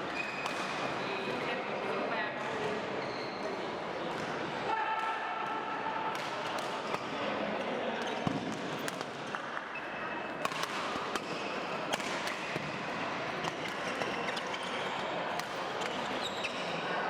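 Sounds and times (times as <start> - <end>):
sports hall background noise: 0.0 - 17.0
rackets hitting shuttlecock: 0.3 - 0.9, 6.1 - 7.2, 8.0 - 9.7, 10.3 - 14.6.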